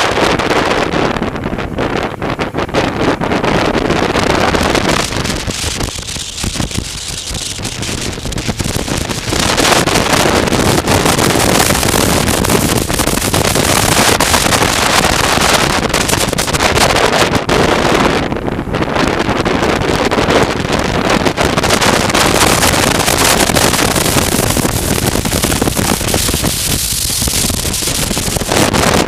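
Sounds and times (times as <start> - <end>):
wind rushing over microphone: 0.0 - 29.0
motorcycle engine running: 3.0 - 17.7, 21.3 - 28.9.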